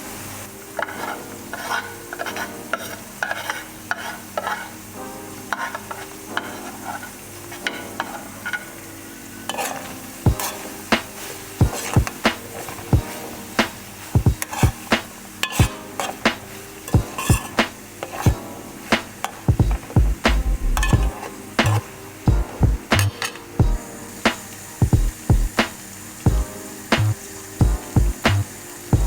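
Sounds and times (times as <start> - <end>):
food sizzling in a frying pan: 0.0 - 29.0
utensil stirring and scraping: 0.7 - 8.8, 9.4 - 23.7.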